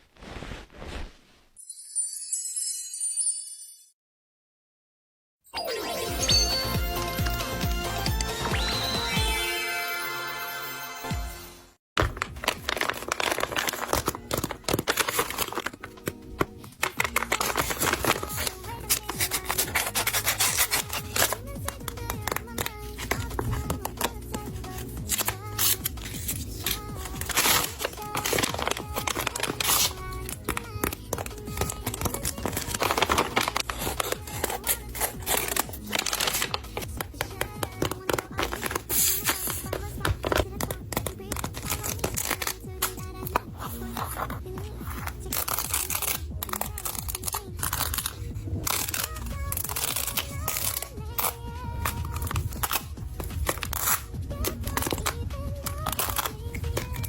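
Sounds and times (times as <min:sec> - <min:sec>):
paper bag crinkling and tearing: 0:00.0 - 0:01.5, 0:12.0 - 0:57.0
music: 0:05.5 - 0:57.0.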